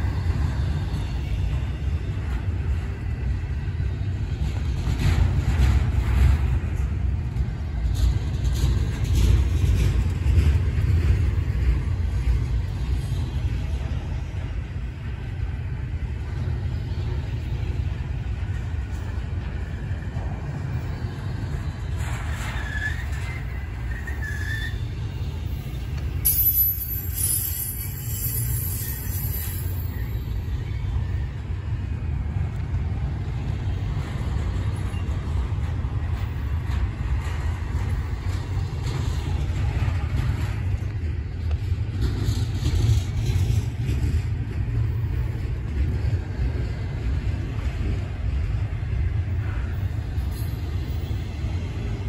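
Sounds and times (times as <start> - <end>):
freight train rumbling past: 0.0 - 52.0.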